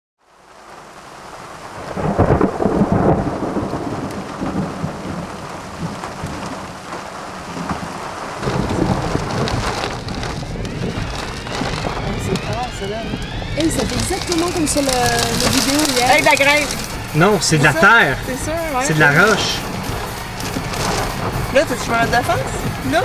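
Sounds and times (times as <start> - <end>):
thunder rumbling: 1.2 - 23.0.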